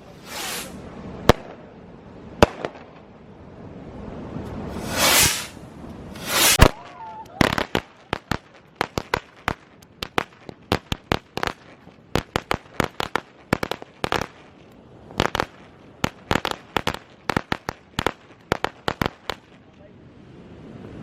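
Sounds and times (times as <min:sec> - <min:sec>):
firecrackers banging: 0:00.0 - 0:01.6, 0:04.5 - 0:19.7.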